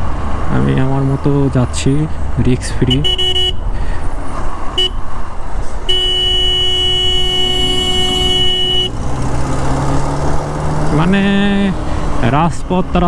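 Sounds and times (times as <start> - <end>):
motorcycle wind and road noise: 0.0 - 13.0
vehicle horn blast: 2.9 - 3.6, 4.8 - 5.0, 5.9 - 9.0.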